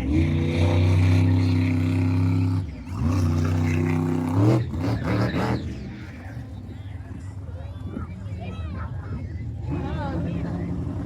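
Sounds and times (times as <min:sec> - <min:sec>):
monster truck engine revving: 0:00.0 - 0:06.1.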